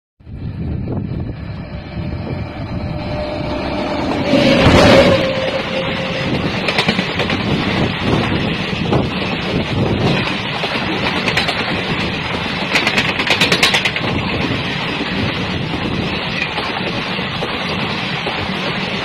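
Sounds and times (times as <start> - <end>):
train wheels rumbling on rails: 0.2 - 19.0
sharp clacks: 12.6 - 14.1.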